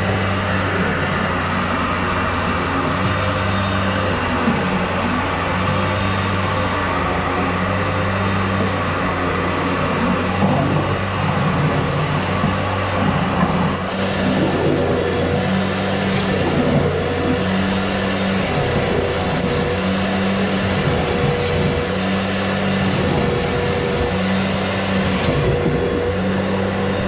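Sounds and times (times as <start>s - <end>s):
electric motor humming: 11.6s - 27.0s.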